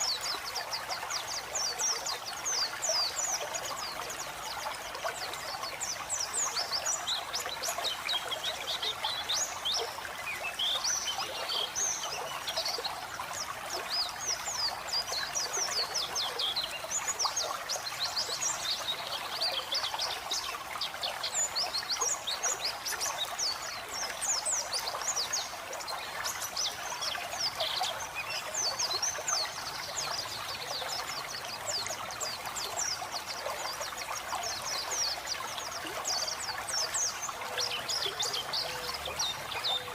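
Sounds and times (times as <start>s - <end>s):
trickling water: 0.0s - 39.9s.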